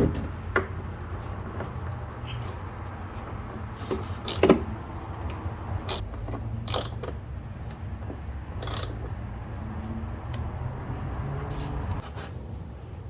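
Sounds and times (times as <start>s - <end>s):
hand tools clinking on metal: 4.3s - 4.5s, 6.7s - 7.0s, 8.6s - 9.0s.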